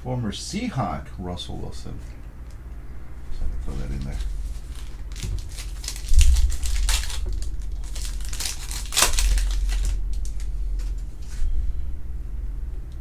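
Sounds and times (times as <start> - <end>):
wrapper crinkling and tearing: 3.7 - 11.4.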